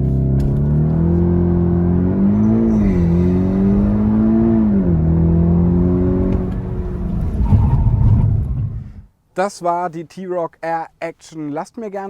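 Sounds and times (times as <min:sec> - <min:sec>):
car engine accelerating hard: 0:00.0 - 0:08.8.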